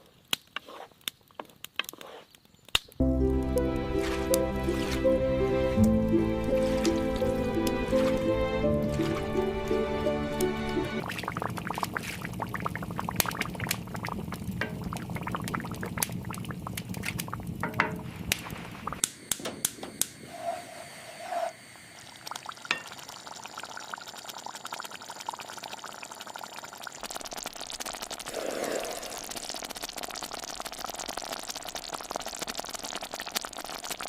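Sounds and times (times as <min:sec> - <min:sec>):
small crackles and clicks: 0:00.0 - 0:03.5, 0:11.2 - 0:20.1, 0:29.0 - 0:34.0
liquid bubbling and pouring: 0:03.3 - 0:19.1, 0:21.8 - 0:34.0.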